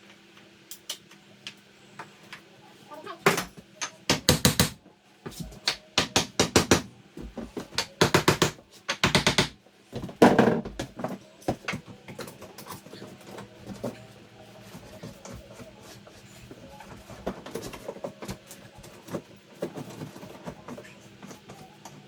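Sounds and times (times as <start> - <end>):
hammer tapping on wood: 4.1 - 4.8, 5.6 - 6.9, 7.7 - 9.6.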